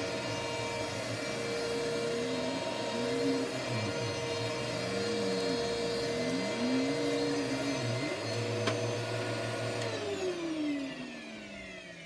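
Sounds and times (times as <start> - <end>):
vacuum cleaner motor whine: 0.0 - 12.0
vacuum cleaner click: 3.1 - 10.9.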